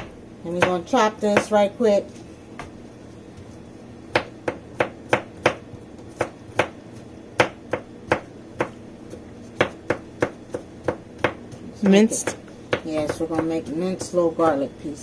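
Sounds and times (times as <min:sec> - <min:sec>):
knife chopping on cutting board: 0:04.1 - 0:14.2.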